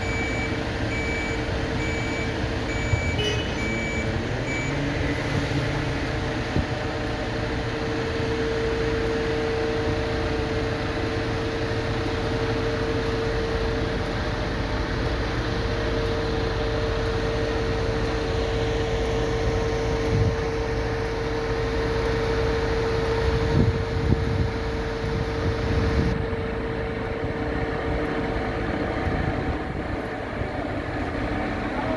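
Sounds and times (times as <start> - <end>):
truck engine droning with whine: 0.0 - 31.9.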